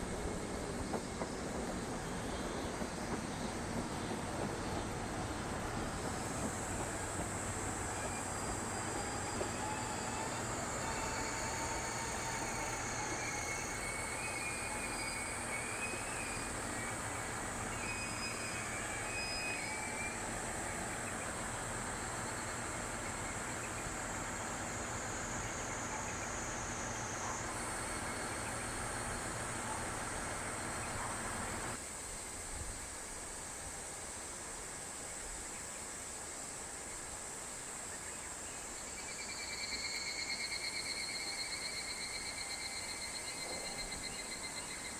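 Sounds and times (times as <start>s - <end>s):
diesel railcar rumbling: 0.0s - 31.8s
cicadas chorus: 0.4s - 44.9s.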